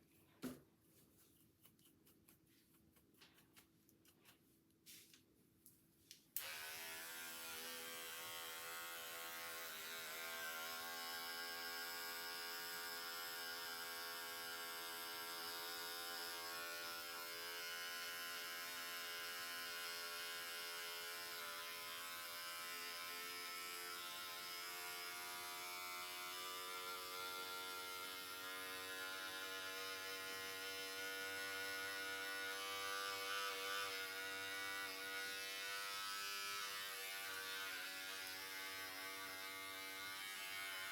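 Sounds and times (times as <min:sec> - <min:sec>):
hair clippers switch click: 0:06.4 - 0:06.7
hair clippers buzzing: 0:06.4 - 0:40.9.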